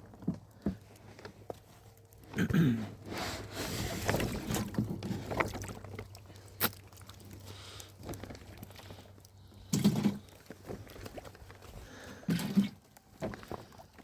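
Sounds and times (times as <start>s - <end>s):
handling noises: 0.0s - 14.0s
water sloshing and splashing: 2.9s - 14.0s.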